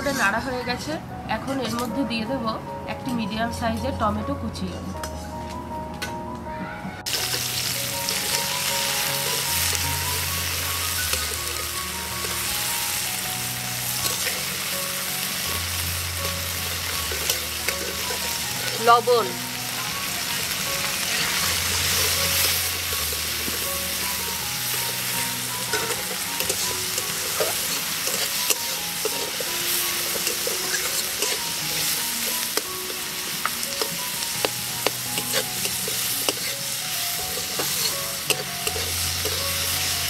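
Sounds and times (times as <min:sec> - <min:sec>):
vegetables sizzling in hot oil: 0:07.1 - 0:40.0
spatula scraping and tapping pan: 0:25.6 - 0:36.6, 0:37.3 - 0:39.6.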